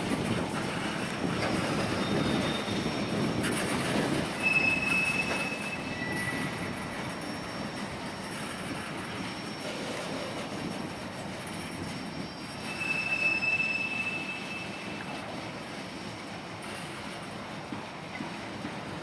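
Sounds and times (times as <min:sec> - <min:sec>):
train wheels rumbling on rail: 0:00.0 - 0:19.0
high-pitched wheel squeal: 0:01.4 - 0:10.8, 0:11.4 - 0:15.1.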